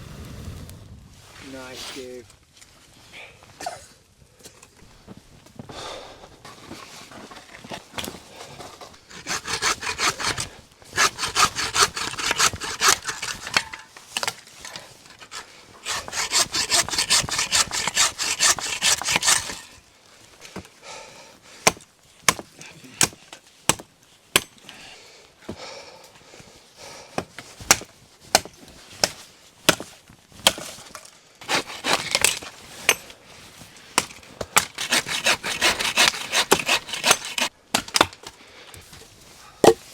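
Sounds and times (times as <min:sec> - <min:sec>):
hand saw cutting wood: 0:08.0 - 0:19.8, 0:31.4 - 0:33.0, 0:34.0 - 0:38.2.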